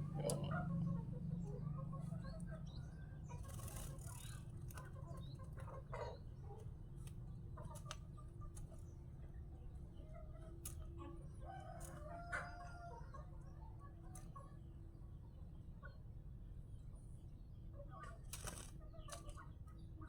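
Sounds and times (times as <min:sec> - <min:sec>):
steady low hum: 0:00.0 - 0:04.5
bird chirps and clucks: 0:00.1 - 0:16.8.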